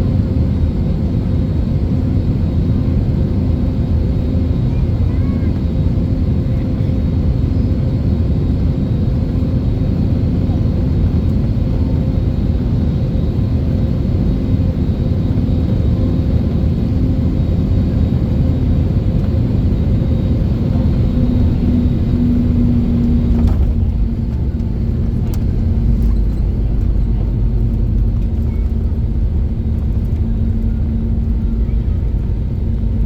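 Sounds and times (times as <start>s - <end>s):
airplane cabin engine rumble: 0.0s - 33.0s.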